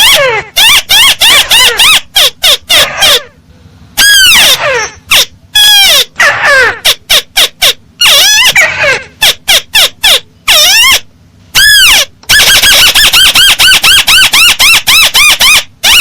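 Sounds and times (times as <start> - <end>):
bird squawking calls: 4.0 - 12.1.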